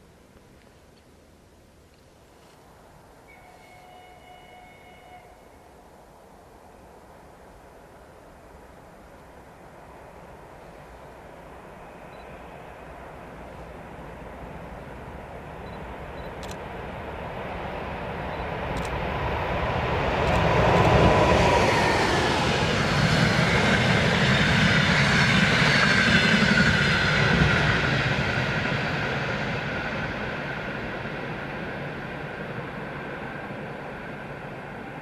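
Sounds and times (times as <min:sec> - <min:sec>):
locomotive whine: 0:03.3 - 0:05.8
electric train passing: 0:07.1 - 0:35.0.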